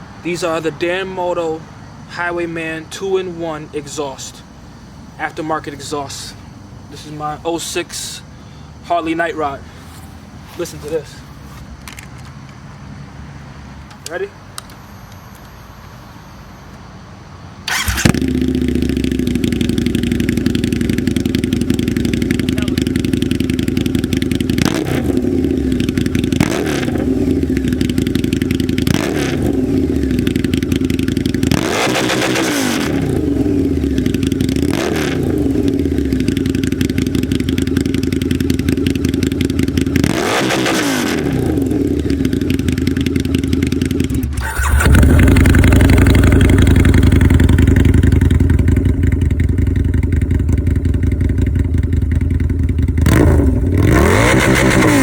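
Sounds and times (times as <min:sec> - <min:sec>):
motorcycle engine idling: 0:17.7 - 0:55.0.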